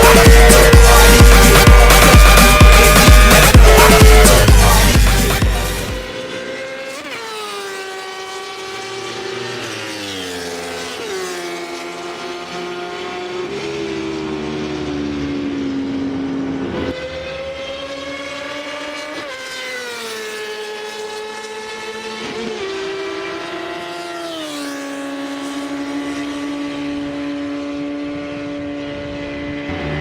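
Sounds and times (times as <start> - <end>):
motorcycle engine passing at speed: 0.0 - 30.0.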